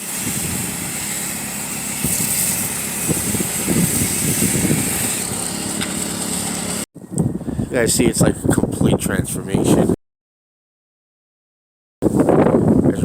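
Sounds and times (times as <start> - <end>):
pressure washer engine running: 0.0 - 6.9
water spray hissing: 0.0 - 6.9.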